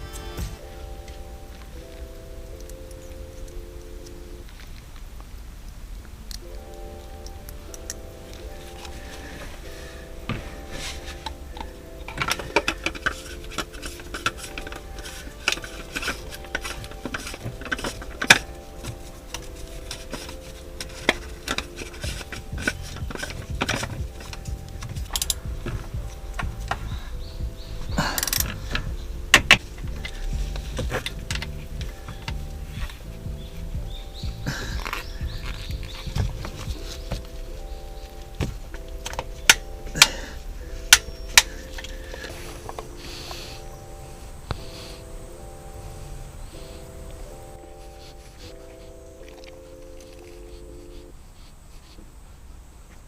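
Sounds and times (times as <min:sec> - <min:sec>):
quiet background music: 0:00.0 - 0:53.0
hand tools and parts clicking: 0:06.3 - 0:45.8, 0:46.6 - 0:51.1.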